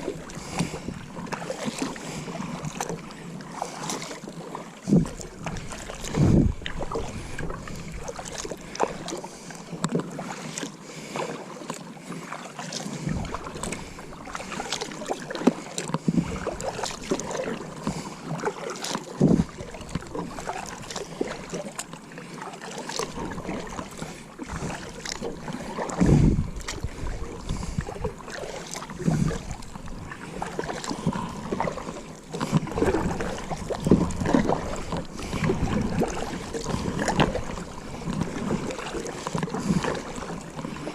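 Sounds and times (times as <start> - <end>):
knocks and splashes around kayak: 0.0 - 40.9
wind noise on microphone: 4.9 - 8.0, 19.2 - 19.6, 26.0 - 28.2, 29.0 - 29.6, 32.5 - 38.6.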